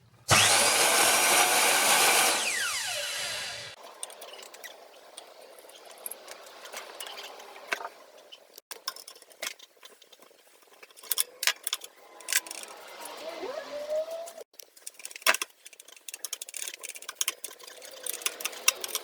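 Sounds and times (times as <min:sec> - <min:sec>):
light clicks and taps of tools: 0:14.5 - 0:19.0.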